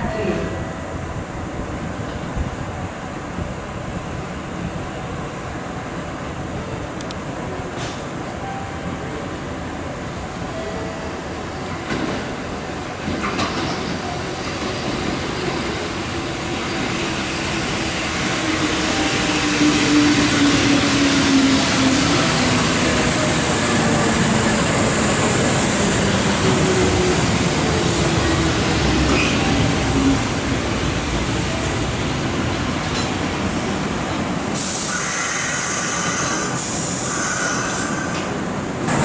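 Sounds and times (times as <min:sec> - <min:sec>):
train wheels on rails: 0:06.9 - 0:08.3, 0:11.5 - 0:39.0.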